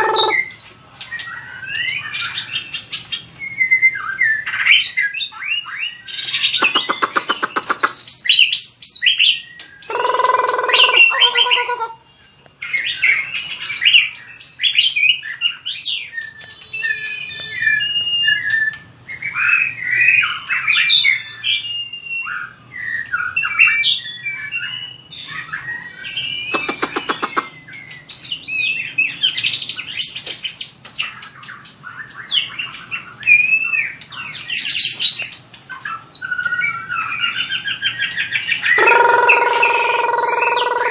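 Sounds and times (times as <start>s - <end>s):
harsh buzzy bird call: 0.0s - 0.6s, 6.4s - 8.3s, 9.9s - 12.0s, 26.5s - 27.6s, 38.8s - 40.9s
bird whistled song: 0.0s - 40.9s
rapid rattling bird trill: 6.0s - 12.0s, 24.0s - 28.2s, 28.8s - 40.9s.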